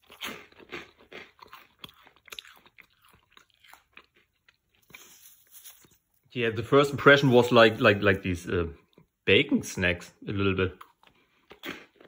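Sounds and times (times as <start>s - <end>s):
crunching and chewing snacks: 0.0s - 6.2s.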